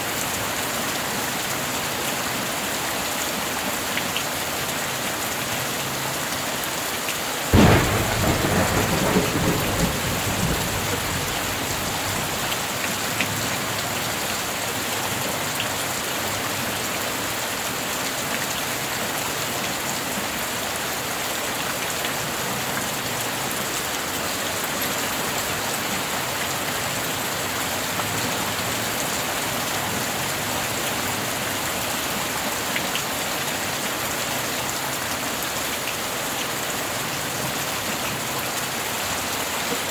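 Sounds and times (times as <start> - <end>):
heavy rain: 0.0 - 39.9
thunderclap rumbling: 7.6 - 13.1.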